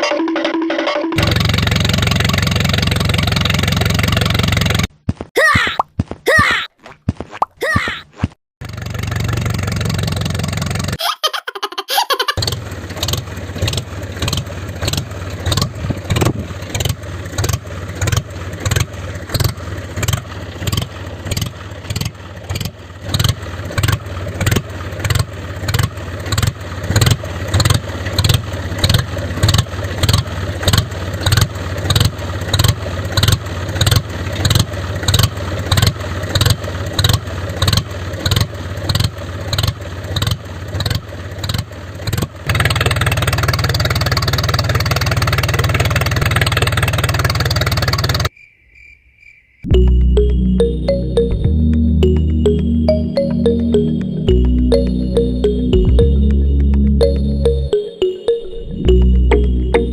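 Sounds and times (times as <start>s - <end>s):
tractor engine chugging: 1.2s - 4.9s, 8.6s - 11.0s, 12.4s - 48.3s.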